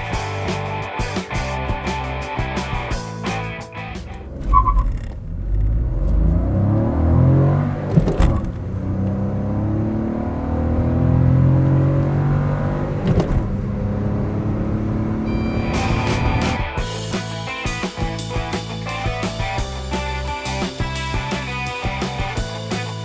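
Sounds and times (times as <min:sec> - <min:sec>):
car engine accelerating: 0:00.0 - 0:23.0
short electronic beep: 0:15.2 - 0:16.7.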